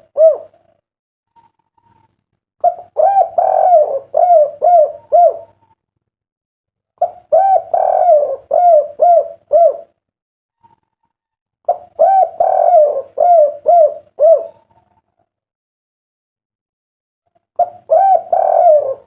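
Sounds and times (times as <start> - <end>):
dove cooing: 0.0 - 0.8, 1.4 - 5.8, 7.0 - 10.0, 11.7 - 15.0, 17.6 - 19.0.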